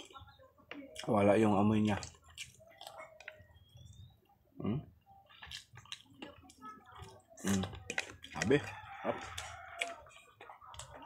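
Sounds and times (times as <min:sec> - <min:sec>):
wet chewing and lip-smacking: 0:01.9 - 0:04.1, 0:05.0 - 0:11.0.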